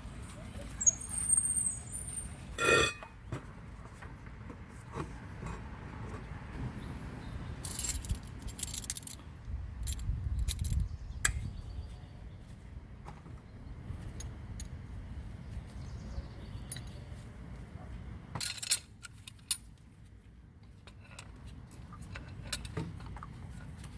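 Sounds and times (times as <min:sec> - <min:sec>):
metal hardware clinking: 0:02.6 - 0:03.0.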